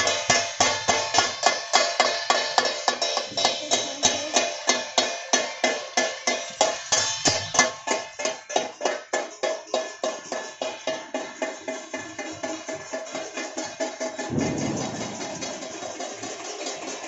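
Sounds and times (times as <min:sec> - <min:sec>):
metal ringing clangs: 0:00.0 - 0:17.0.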